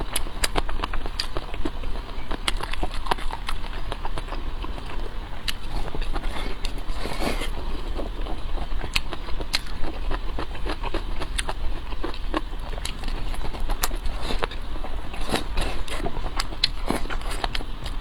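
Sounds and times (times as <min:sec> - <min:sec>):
chewing with clicks and smacks: 0:00.0 - 0:18.0.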